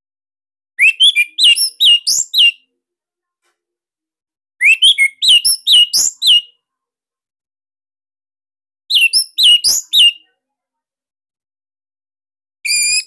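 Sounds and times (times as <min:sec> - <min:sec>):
songbird singing: 0:00.8 - 0:02.6, 0:04.6 - 0:06.6, 0:08.9 - 0:10.3.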